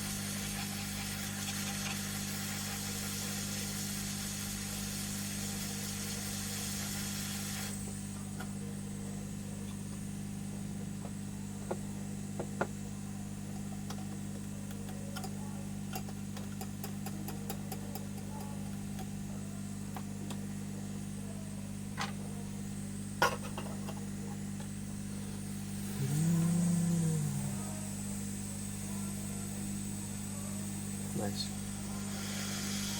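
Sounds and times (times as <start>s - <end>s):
hot air gun hissing: 0.0s - 7.9s, 31.2s - 32.9s
low electrical hum: 0.0s - 32.9s
small tools clicking and tapping: 13.9s - 19.1s.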